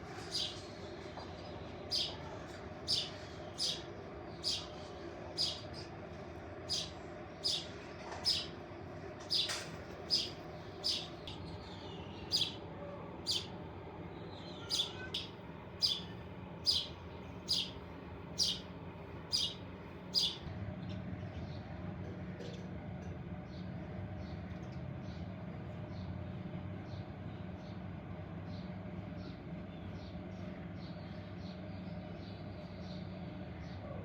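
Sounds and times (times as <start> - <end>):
bird chirping: 4.4 - 5.7, 6.7 - 8.5, 9.3 - 12.6, 13.3 - 13.5, 14.2 - 17.8, 18.4 - 18.7, 19.3 - 20.4.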